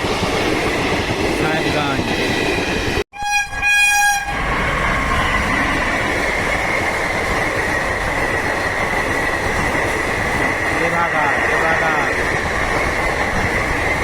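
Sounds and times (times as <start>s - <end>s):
train rumble: 0.0s - 14.0s
locomotive horn blast: 3.1s - 4.4s.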